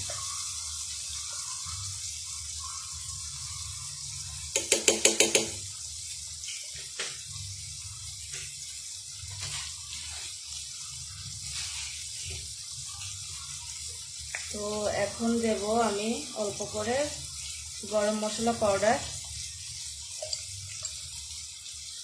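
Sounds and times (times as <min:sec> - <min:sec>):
food sizzling in a frying pan: 0:00.0 - 0:22.0.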